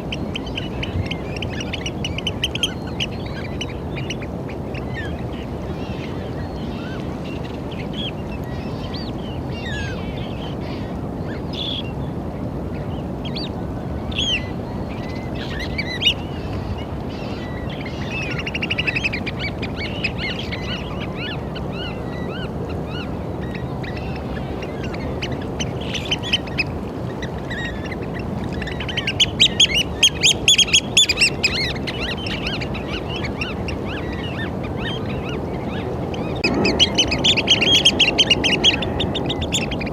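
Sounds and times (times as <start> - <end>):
oystercatchers calling: 14.1 - 39.9.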